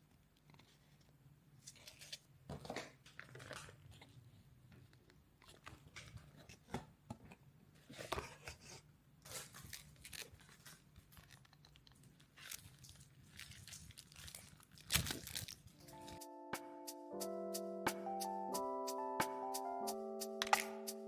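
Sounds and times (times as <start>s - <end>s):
rustles and crinkles of handling: 0.0s - 16.2s.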